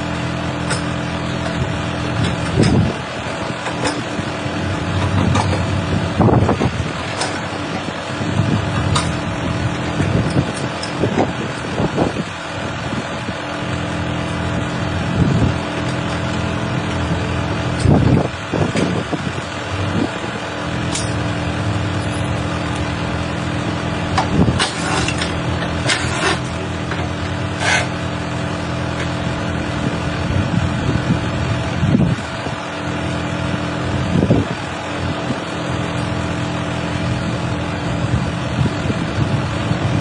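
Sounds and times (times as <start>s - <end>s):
machine engine running: 0.0s - 40.0s
metal clanks and knocks: 4.9s - 5.8s.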